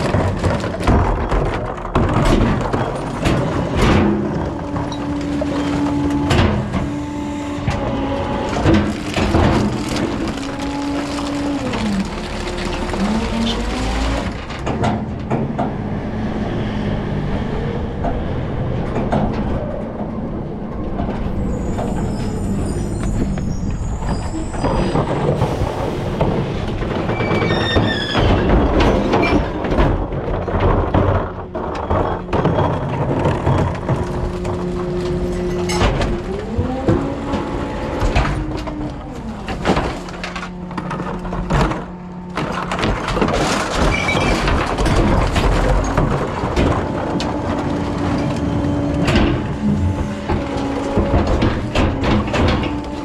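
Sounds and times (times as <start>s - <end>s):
clanks and knocks: 0.0s - 16.6s, 17.2s - 53.0s
garbage truck engine humming: 0.0s - 53.0s
high squeal: 21.3s - 26.0s.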